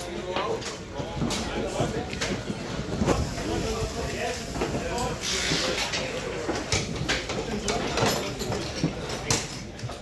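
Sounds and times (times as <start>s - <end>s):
knocks and clatter of car repair: 5.8s - 10.0s.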